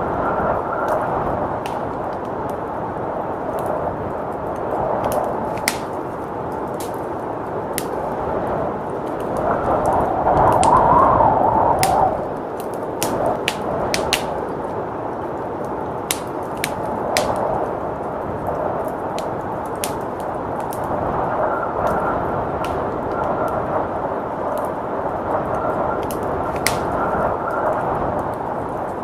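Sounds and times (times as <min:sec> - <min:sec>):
blizzard wind: 0:00.0 - 0:29.0
wood fire crackling: 0:00.0 - 0:29.0
sharp pops of fire: 0:00.8 - 0:02.7, 0:03.5 - 0:08.2, 0:08.9 - 0:10.9, 0:11.5 - 0:14.7, 0:15.6 - 0:17.8, 0:18.4 - 0:21.0, 0:21.8 - 0:23.7, 0:25.4 - 0:29.0.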